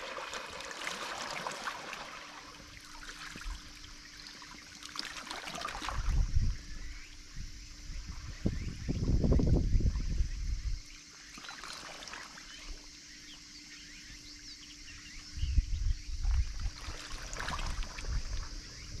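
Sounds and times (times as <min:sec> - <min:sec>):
small waves lapping: 0:00.0 - 0:06.3, 0:11.1 - 0:13.0, 0:16.2 - 0:19.0
water trickling: 0:00.0 - 0:06.6, 0:16.3 - 0:19.0.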